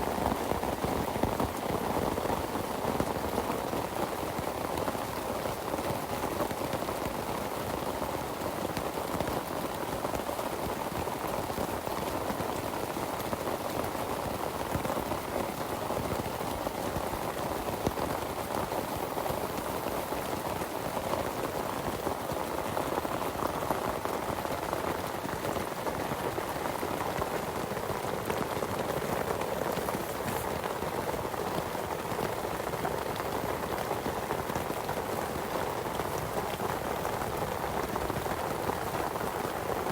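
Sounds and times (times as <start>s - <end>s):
heavy rain falling: 12.6s - 39.9s.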